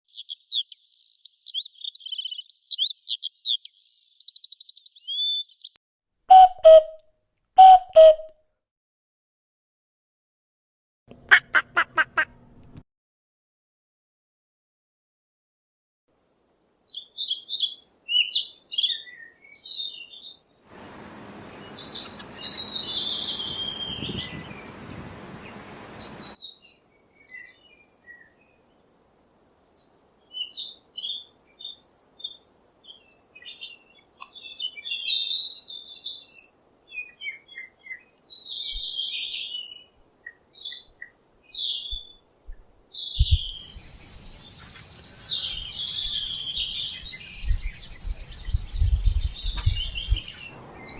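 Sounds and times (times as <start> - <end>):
birds chirping and trilling: 0.1 - 5.8, 16.9 - 28.7, 29.9 - 50.9
steady hiss: 20.7 - 26.4.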